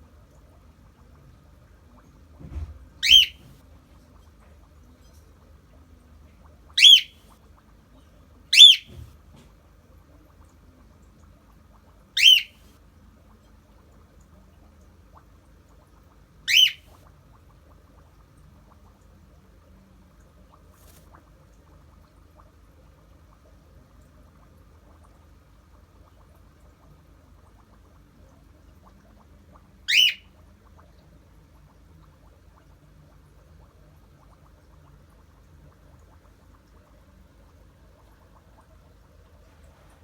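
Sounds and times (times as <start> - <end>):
cockatiel whistled calls: 3.0 - 3.5, 6.8 - 7.2, 8.6 - 9.0, 12.2 - 12.6, 16.5 - 16.8, 29.9 - 30.2.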